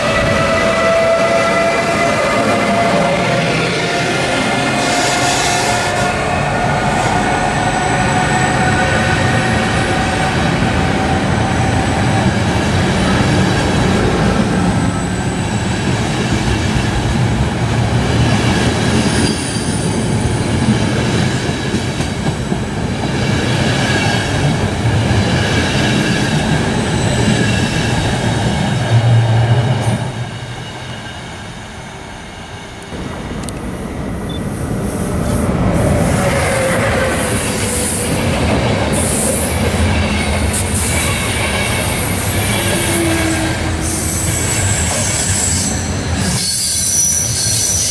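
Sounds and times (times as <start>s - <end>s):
train wheels squealing on rails: 0.0s - 17.1s, 18.2s - 22.4s, 23.0s - 32.8s, 34.2s - 47.9s
train wheels clickety-clack: 15.4s - 29.0s, 35.1s - 47.9s.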